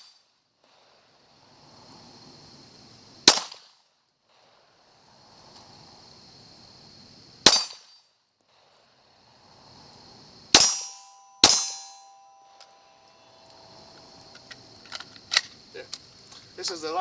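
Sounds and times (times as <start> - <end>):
gunshots echoing: 10.5 - 12.8
metallic ring: 10.6 - 14.2.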